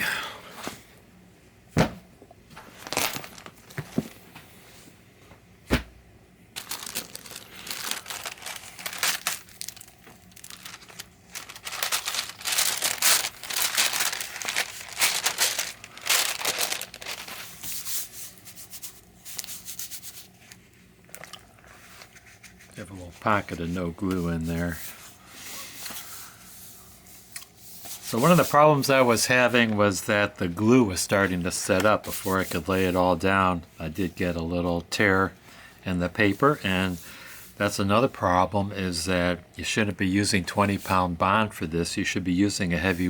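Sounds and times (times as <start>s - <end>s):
paper rustling and crinkling: 2.6s - 4.2s, 6.6s - 26.4s, 27.8s - 33.1s.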